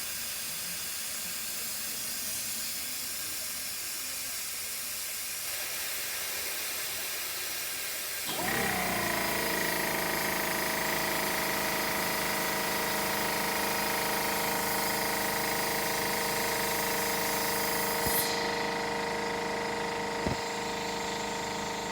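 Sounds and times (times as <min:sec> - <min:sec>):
compressed air hissing: 0:00.0 - 0:12.4, 0:14.5 - 0:19.1
air compressor motor humming: 0:08.2 - 0:21.9.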